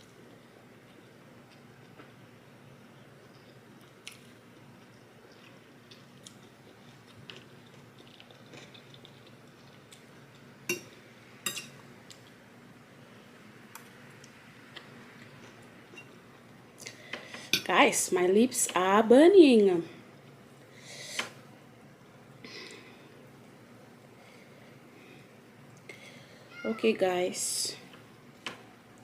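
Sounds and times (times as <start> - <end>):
person chewing food: 3.3 - 11.0.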